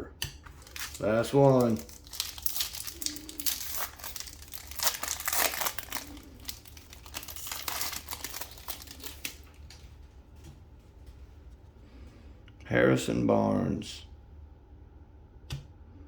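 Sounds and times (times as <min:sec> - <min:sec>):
plastic wrapper tearing and crinkling: 0:00.5 - 0:09.9.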